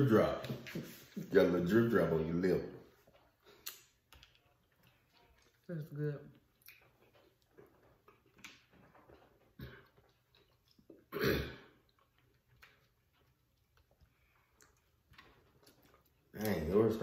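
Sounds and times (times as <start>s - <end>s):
chewing noises: 0.9s - 17.0s
throat clearing: 11.1s - 11.8s.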